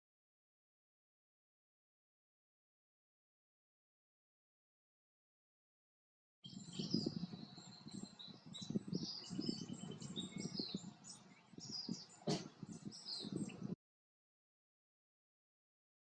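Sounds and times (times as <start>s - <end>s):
small birds chirping: 6.4s - 13.8s.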